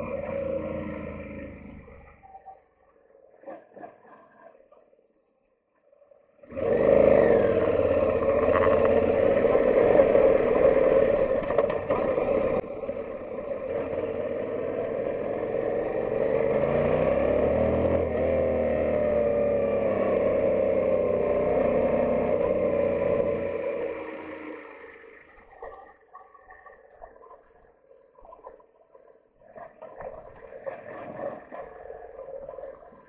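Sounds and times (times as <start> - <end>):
motorcycle engine revving: 0.0 - 2.2, 6.4 - 25.5
wind and road noise: 6.4 - 25.9.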